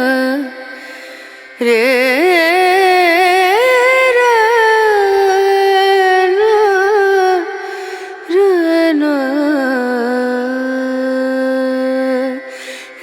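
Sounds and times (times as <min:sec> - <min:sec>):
person singing with vibrato: 0:00.0 - 0:13.0.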